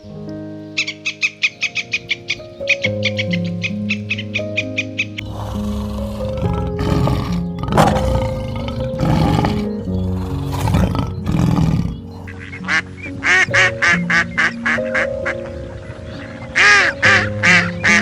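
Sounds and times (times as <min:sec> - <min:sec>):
background music with held notes: 0:00.0 - 0:18.0
lion roaring: 0:05.2 - 0:12.8
duck quacking: 0:12.1 - 0:15.4.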